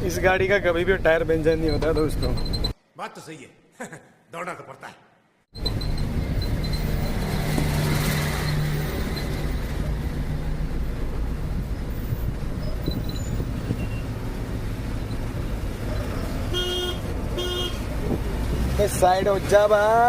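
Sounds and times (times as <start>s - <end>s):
truck engine rumbling: 0.0s - 2.7s, 5.5s - 20.0s
truck horn toot: 16.4s - 17.9s.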